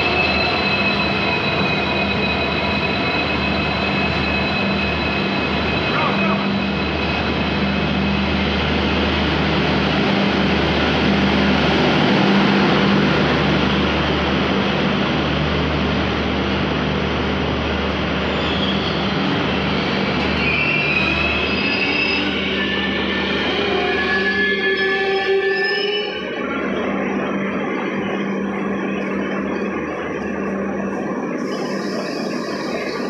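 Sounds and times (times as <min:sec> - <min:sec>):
high-pitched wheel squeals: 0:20.3 - 0:26.4.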